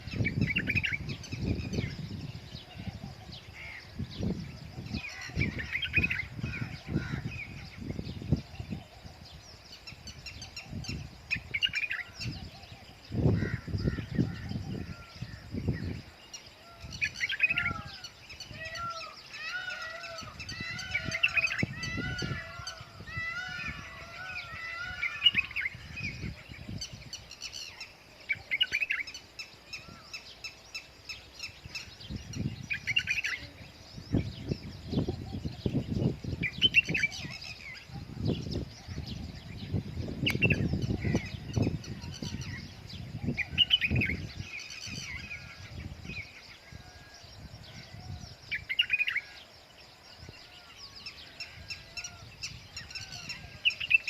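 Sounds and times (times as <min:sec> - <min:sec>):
birds chirping: 0:00.0 - 0:54.0
rising and falling bird calls: 0:00.0 - 0:54.0.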